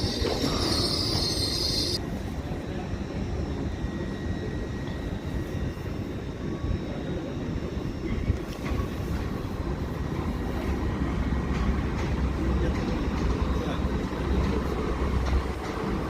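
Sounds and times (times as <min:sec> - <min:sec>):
train wheels squealing on rail: 0:00.0 - 0:02.0
low rumble of train: 0:00.0 - 0:16.0.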